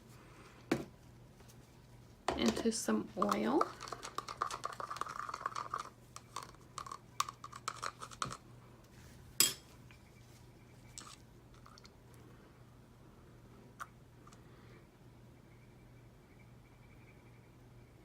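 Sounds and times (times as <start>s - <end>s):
stirrer scraping in cup: 2.3s - 8.4s.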